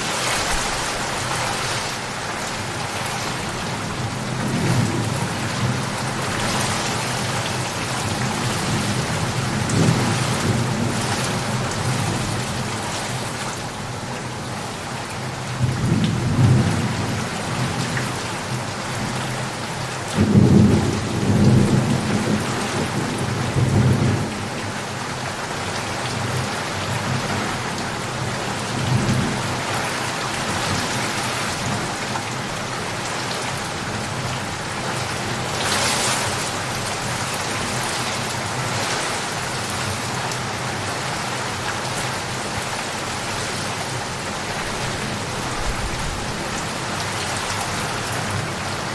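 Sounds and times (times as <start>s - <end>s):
steady rain falling: 0.0s - 48.9s
thunder rumbling: 44.4s - 46.9s.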